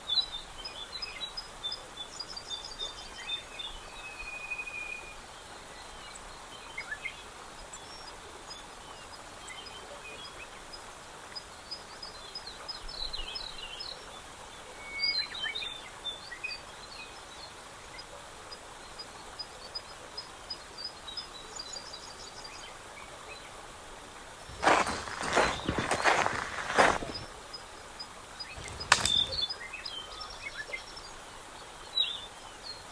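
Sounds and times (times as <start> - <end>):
small birds chirping and trilling: 24.5 - 27.3, 28.6 - 29.5.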